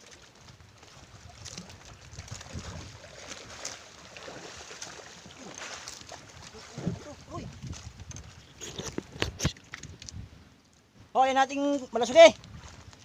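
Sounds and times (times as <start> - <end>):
water splashing against boat hull: 0.0 - 10.1.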